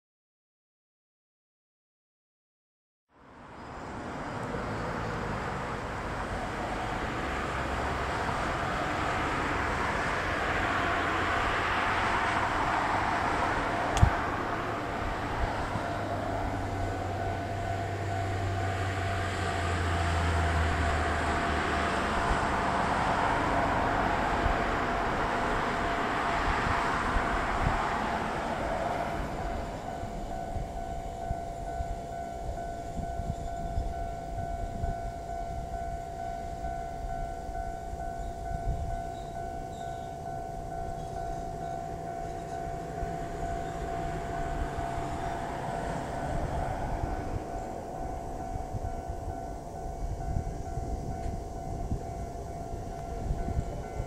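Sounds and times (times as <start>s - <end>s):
electric train pulling in: 3.2s - 54.0s
steady high tone: 3.4s - 54.0s.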